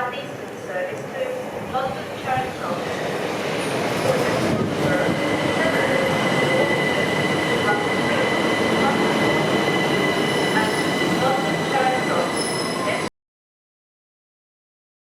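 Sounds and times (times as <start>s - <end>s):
train rumbling: 0.4s - 13.1s
wheels squealing: 12.1s - 13.0s.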